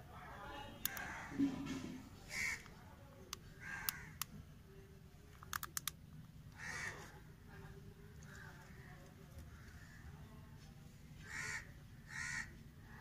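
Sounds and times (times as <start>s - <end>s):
bird cawing: 2.3s - 2.6s, 3.6s - 4.2s, 6.6s - 7.1s, 11.2s - 12.6s.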